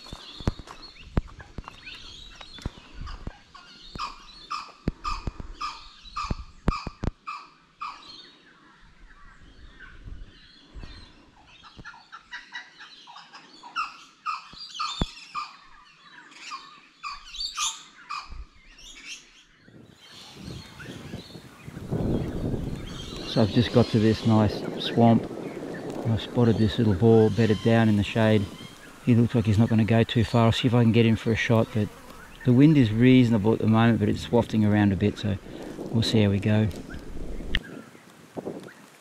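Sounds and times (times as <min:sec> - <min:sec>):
footsteps on wet mud: 0:00.0 - 0:03.2.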